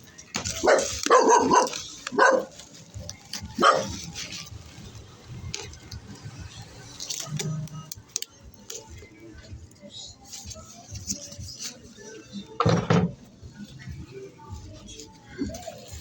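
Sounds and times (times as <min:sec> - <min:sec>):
dog barking: 0:00.5 - 0:02.6, 0:03.6 - 0:04.1.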